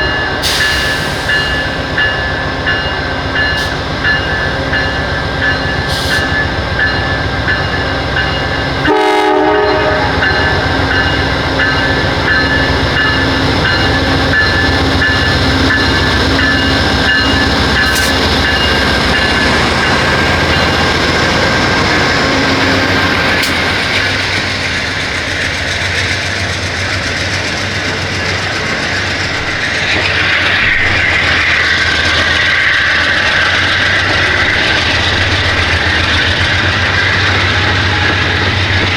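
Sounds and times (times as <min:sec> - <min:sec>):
rail clatter: 0:00.0 - 0:38.9
train rumbling over rails: 0:00.0 - 0:38.9
train horn blast: 0:08.8 - 0:10.7.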